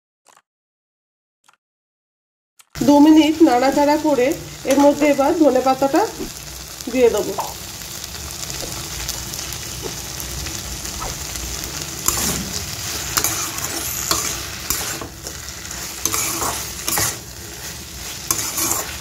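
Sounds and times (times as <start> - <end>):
vegetables sizzling in oil: 2.8 - 19.0
spatula scraping pan: 10.9 - 19.0.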